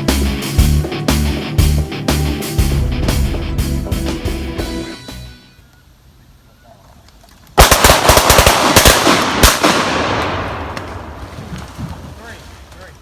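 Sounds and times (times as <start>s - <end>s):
rolling echo of gunshots: 7.6s - 11.2s.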